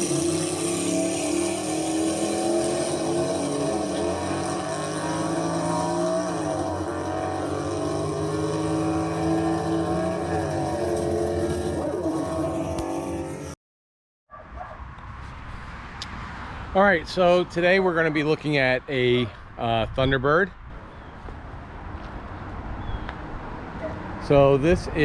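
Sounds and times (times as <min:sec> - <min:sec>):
car engine running: 0:00.0 - 0:13.6.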